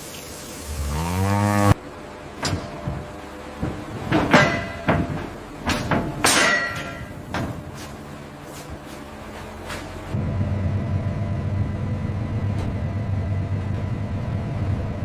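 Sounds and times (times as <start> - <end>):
cow mooing: 0.7 - 1.8
sharp ringing knocks: 4.1 - 7.5.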